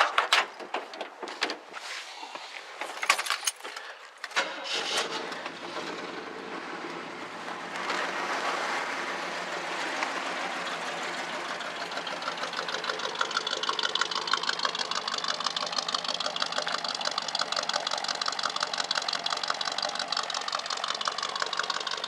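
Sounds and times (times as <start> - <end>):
clicks and rattles: 0.0 - 1.7, 2.8 - 4.6
car engine starting and idling: 2.9 - 22.0.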